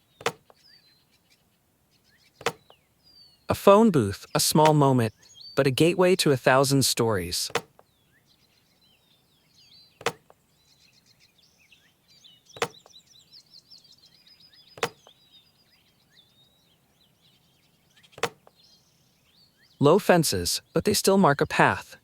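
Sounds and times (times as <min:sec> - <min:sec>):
faint birds chirping: 0:00.0 - 0:22.0.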